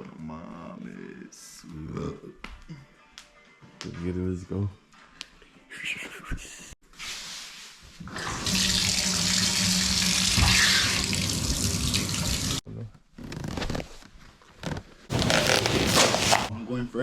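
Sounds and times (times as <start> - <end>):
tap water running into sink: 8.1 - 12.6.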